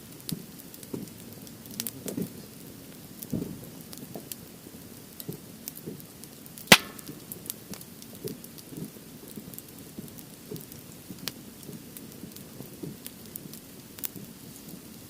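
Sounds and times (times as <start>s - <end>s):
campfire crackling and popping: 5.0s - 15.0s
loud sharp wood crack: 6.7s - 7.2s.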